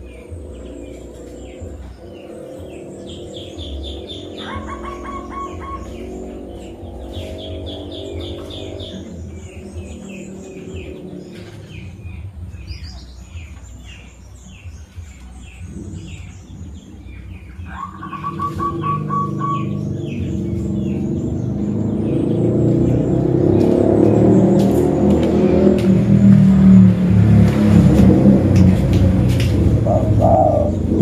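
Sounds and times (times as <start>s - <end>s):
bird trill: 0.0s - 22.2s, 29.6s - 31.0s
birds chirping: 0.0s - 31.0s
low rumble: 19.8s - 31.0s.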